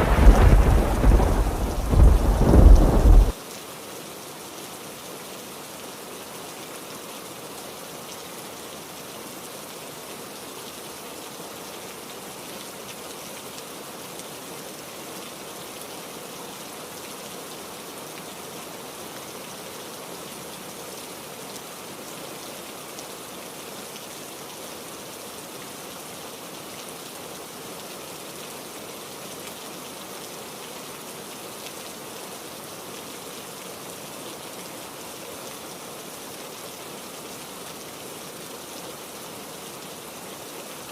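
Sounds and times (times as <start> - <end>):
heavy rain falling: 0.0 - 3.4.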